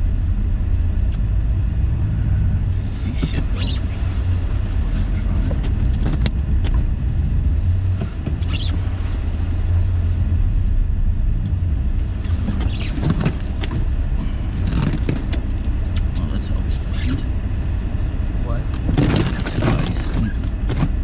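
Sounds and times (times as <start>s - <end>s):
car engine and tyres rumbling: 0.0s - 21.0s.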